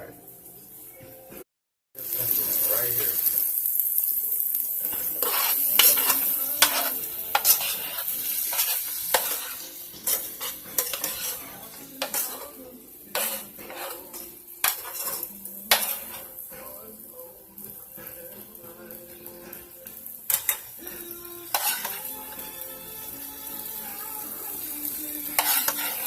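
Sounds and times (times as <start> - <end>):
food sizzling in a frying pan: 2.0 - 26.0
utensil scraping a pan: 4.9 - 16.4, 21.5 - 22.2, 25.3 - 26.0.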